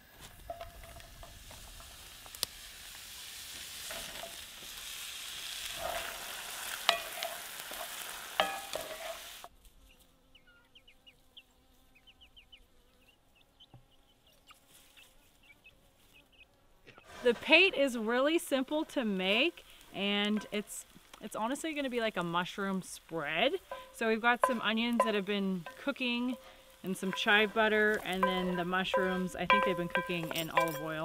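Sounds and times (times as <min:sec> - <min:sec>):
mushrooms sizzling in oil: 0:00.0 - 0:09.5, 0:17.2 - 0:31.0
wooden spatula scraping: 0:05.6 - 0:09.4, 0:17.0 - 0:21.1, 0:22.9 - 0:31.0.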